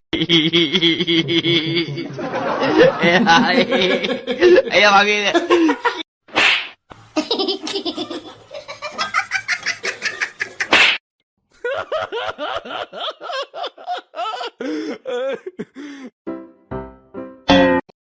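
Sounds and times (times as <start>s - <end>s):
people laughing: 0.2s - 6.0s, 7.2s - 10.7s, 11.6s - 16.1s.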